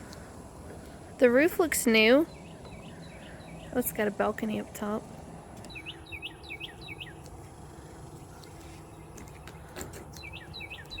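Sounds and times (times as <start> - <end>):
low outdoor rumble: 0.0 - 11.0
bird chirping: 2.1 - 4.1, 5.6 - 11.0.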